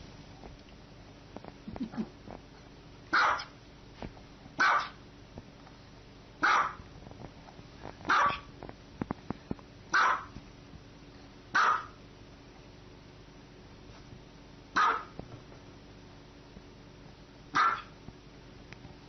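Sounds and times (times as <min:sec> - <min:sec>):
dog barking: 0:03.1 - 0:03.5, 0:04.6 - 0:05.0, 0:06.4 - 0:06.8, 0:08.1 - 0:08.5, 0:09.9 - 0:10.3, 0:11.5 - 0:12.0, 0:14.8 - 0:15.2, 0:17.5 - 0:18.0.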